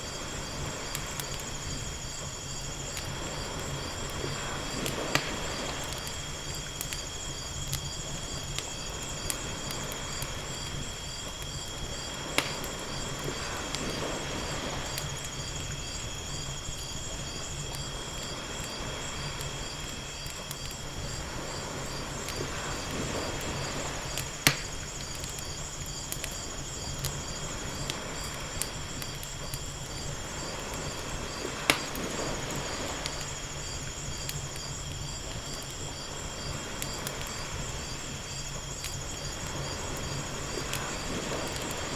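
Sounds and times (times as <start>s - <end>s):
waves washing ashore: 0.0s - 7.1s, 8.0s - 41.9s
wood fire crackling: 0.0s - 41.9s
sharp pops: 12.4s - 12.8s, 24.2s - 24.8s, 31.6s - 32.0s.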